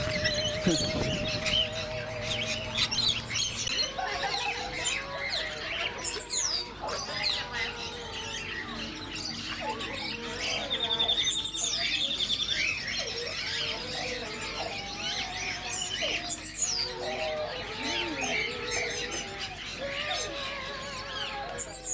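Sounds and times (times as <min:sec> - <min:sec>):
bird trilling rapidly: 0:00.0 - 0:03.9
small birds chirping and calling: 0:00.0 - 0:21.9.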